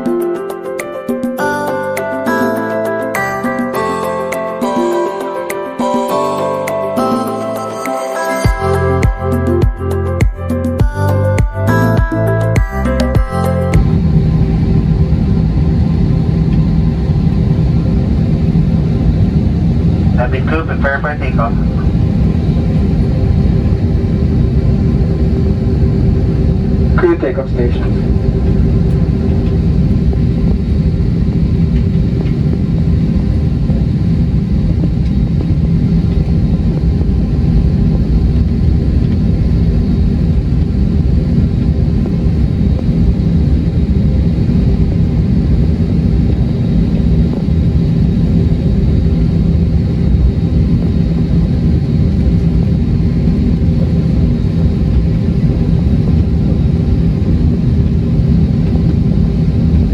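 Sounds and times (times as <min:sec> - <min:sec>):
jet engine rumble in cabin: 0:12.7 - 0:59.9.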